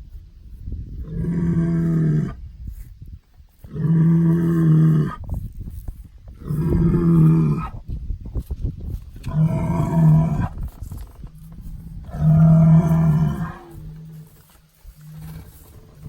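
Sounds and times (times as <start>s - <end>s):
bull bellowing: 1.0s - 2.4s, 3.6s - 5.2s, 6.4s - 7.8s, 9.2s - 16.0s
bull low moan: 6.3s - 7.8s, 9.2s - 16.0s.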